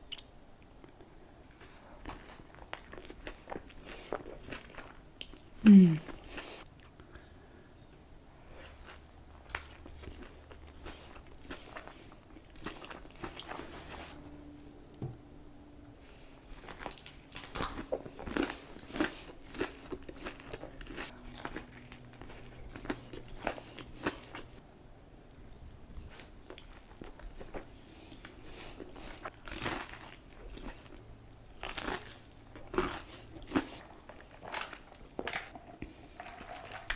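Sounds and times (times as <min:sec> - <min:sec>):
chewing crispy fried chicken: 0:00.1 - 0:07.2, 0:08.0 - 0:13.6, 0:16.5 - 0:24.6, 0:25.4 - 0:36.9.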